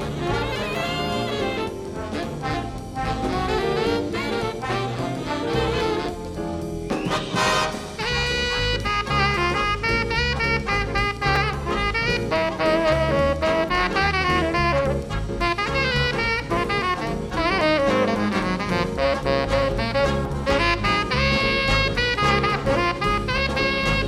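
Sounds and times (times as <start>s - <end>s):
drums: 0.0s - 24.0s
walking bass: 0.0s - 24.0s
wind instrument jazz melody: 0.0s - 24.0s.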